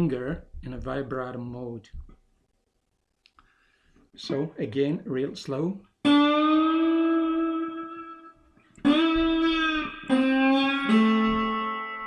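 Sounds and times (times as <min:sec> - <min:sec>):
slide guitar notes: 0:06.0 - 0:12.0.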